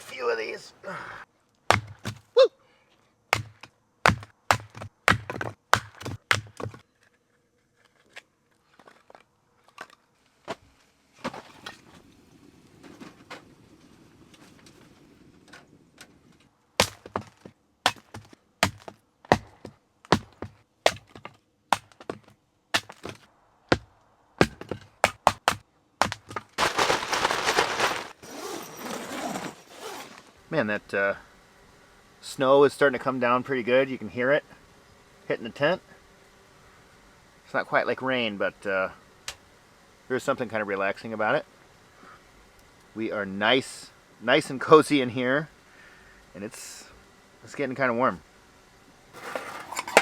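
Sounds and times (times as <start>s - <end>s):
firewood splitting cracks: 1.6s - 2.3s, 3.3s - 6.8s, 16.8s - 28.2s, 49.2s - 50.0s
soft rustle: 26.6s - 30.4s.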